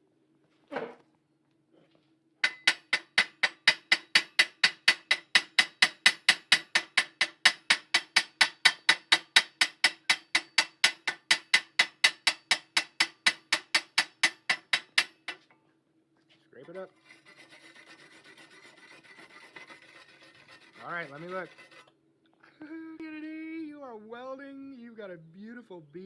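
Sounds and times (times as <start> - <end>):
chipping hammer striking metal: 2.4 - 15.4
faint steady hum: 15.2 - 26.0.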